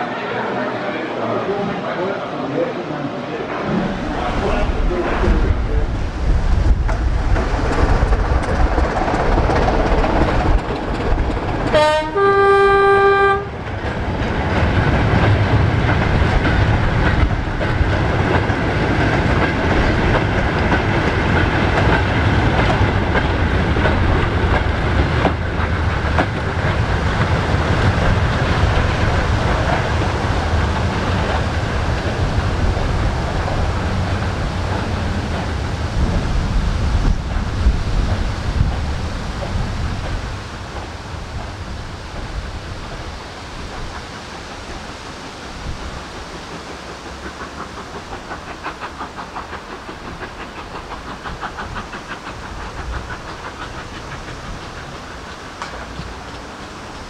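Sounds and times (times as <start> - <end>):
goods train rumbling past: 0.0 - 57.0
locomotive horn blast: 11.7 - 13.5.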